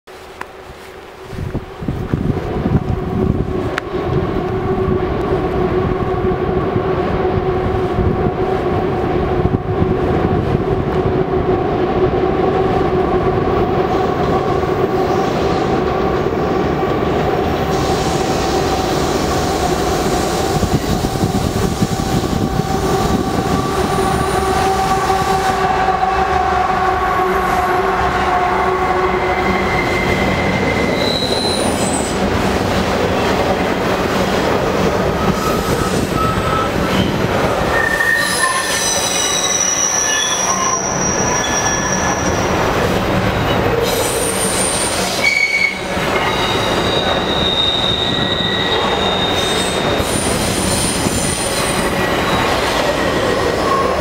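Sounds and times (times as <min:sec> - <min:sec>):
freight train rumble: 0:00.1 - 0:54.0
high wheel squeal: 0:28.5 - 0:32.2, 0:35.1 - 0:42.6, 0:43.5 - 0:54.0.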